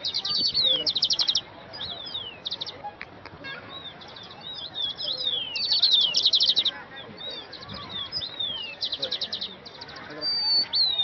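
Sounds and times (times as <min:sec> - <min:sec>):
songbirds chirping: 0:00.0 - 0:11.0
fast loud bird trill: 0:03.5 - 0:11.0.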